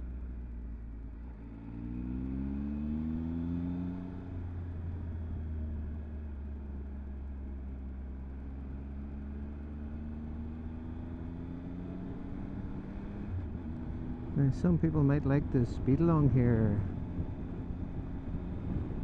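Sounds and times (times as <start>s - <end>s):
wind rumble on microphone: 16.5s - 19.0s.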